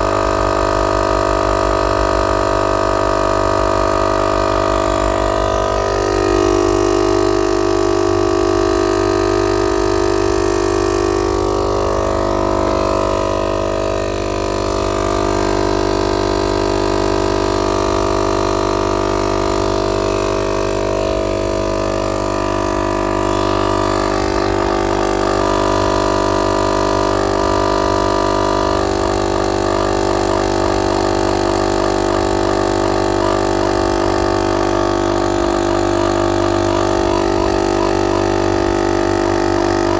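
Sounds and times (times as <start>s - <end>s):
air compressor running: 0.0s - 39.9s.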